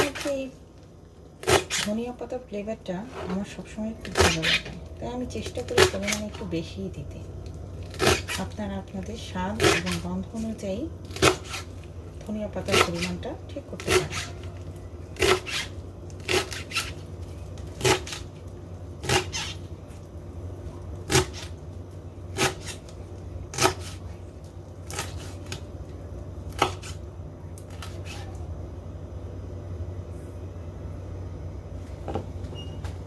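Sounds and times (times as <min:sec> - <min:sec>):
steady low hum: 0:00.0 - 0:33.0
knife chopping on cutting board: 0:23.5 - 0:24.0, 0:26.5 - 0:27.0.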